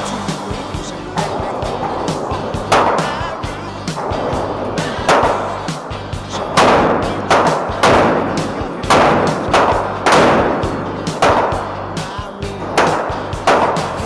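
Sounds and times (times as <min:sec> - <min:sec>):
background music: 0:00.0 - 0:14.0
gunshots with ringing tail: 0:01.2 - 0:14.0.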